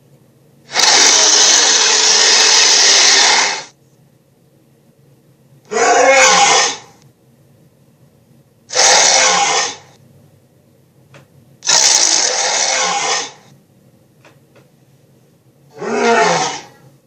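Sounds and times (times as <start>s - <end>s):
raspy cartoon creature roars: 0.7s - 3.7s, 5.7s - 7.0s, 8.7s - 9.9s, 11.7s - 13.5s, 15.7s - 16.8s.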